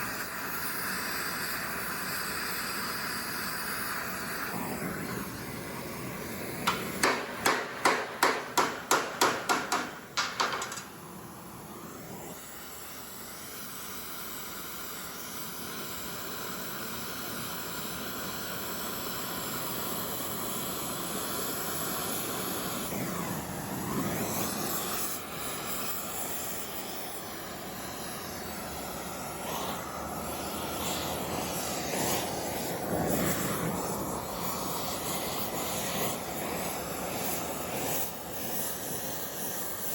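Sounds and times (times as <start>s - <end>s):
steady rushing hiss: 0.0s - 39.9s
hammer striking metal: 6.6s - 11.0s.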